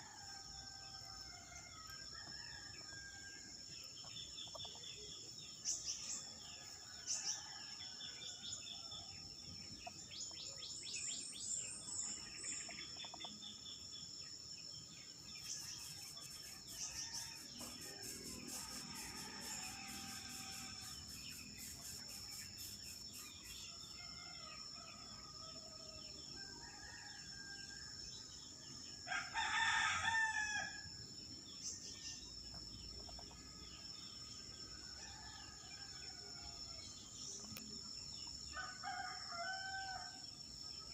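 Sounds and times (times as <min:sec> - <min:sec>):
small bird chirps: 0:04.4 - 0:04.8
high-pitched insect drone: 0:15.6 - 0:24.4
rooster crowing: 0:18.5 - 0:21.0.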